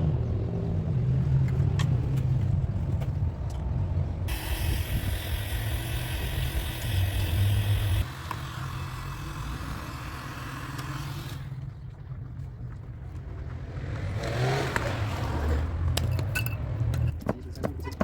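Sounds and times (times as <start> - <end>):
low motor hum: 0.0 - 14.2.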